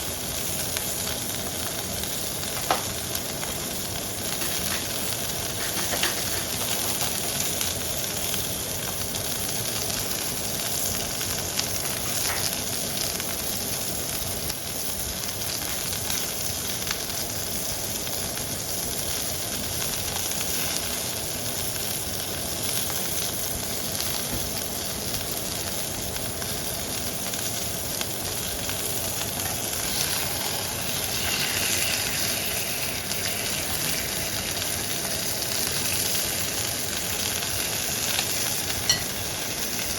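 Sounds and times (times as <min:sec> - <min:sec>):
steak sizzling in a pan: 0:00.0 - 0:39.9
fat spattering and crackling: 0:27.4 - 0:39.9.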